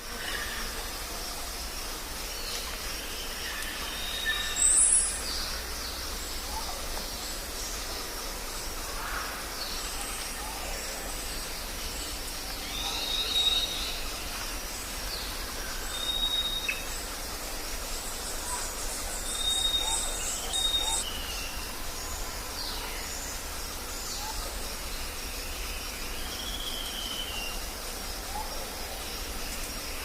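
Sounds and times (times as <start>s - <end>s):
steady background hiss: 0.0s - 30.0s
birds calling and whistling: 12.0s - 14.2s, 15.1s - 17.2s, 18.0s - 27.7s.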